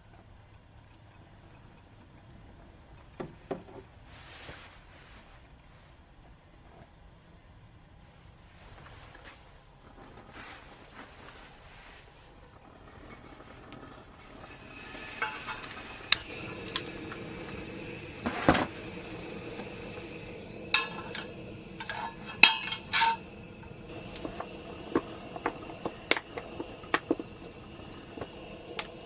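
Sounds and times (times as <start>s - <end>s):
faint high drone: 14.1s - 29.0s
dishes and utensils clinking: 14.4s - 29.0s.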